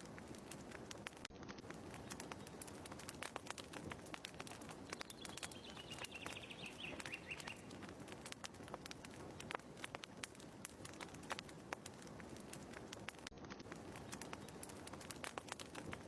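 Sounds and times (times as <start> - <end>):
fireplace crackling: 0.0 - 16.0
bird call: 4.9 - 7.7.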